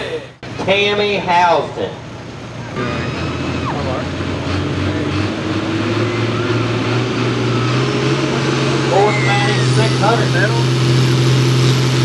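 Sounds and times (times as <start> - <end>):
tractor diesel engine running: 0.0 - 1.0, 1.9 - 12.0
faint high whine: 7.5 - 11.8.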